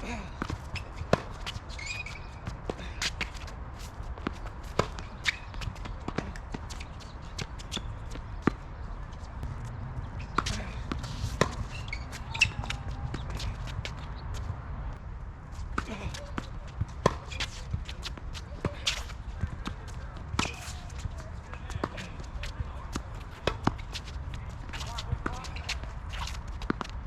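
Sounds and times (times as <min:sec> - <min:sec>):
shoe squeak: 0:00.6 - 0:03.3, 0:04.3 - 0:08.9, 0:10.1 - 0:14.5, 0:15.9 - 0:19.7, 0:20.4 - 0:21.2
steady low rumble: 0:09.3 - 0:16.1.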